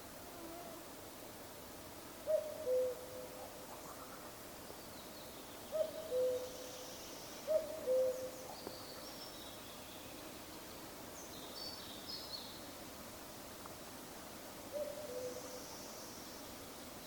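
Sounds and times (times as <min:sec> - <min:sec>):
cuckoo calling: 0:07.5 - 0:08.3.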